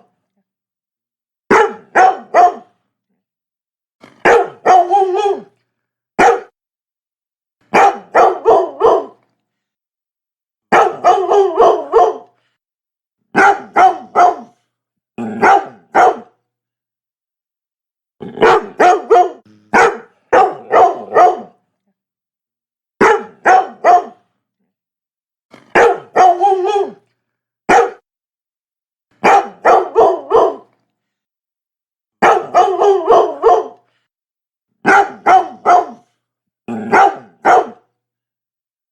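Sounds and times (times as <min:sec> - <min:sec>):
dog barking: 0:01.5 - 0:02.7, 0:04.0 - 0:05.5, 0:06.2 - 0:06.6, 0:07.7 - 0:09.2, 0:10.7 - 0:12.4, 0:13.3 - 0:14.6, 0:15.4 - 0:16.4, 0:18.3 - 0:21.6, 0:23.0 - 0:24.3, 0:25.5 - 0:27.0, 0:27.7 - 0:28.0, 0:29.2 - 0:30.7, 0:32.2 - 0:33.9, 0:34.8 - 0:36.1, 0:36.7 - 0:37.9.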